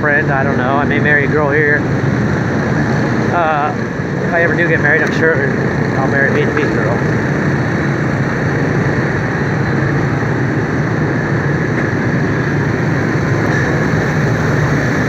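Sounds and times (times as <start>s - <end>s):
road noise: 0.0s - 15.0s
motorbike engine running: 5.6s - 15.0s
wind rushing: 5.6s - 15.0s.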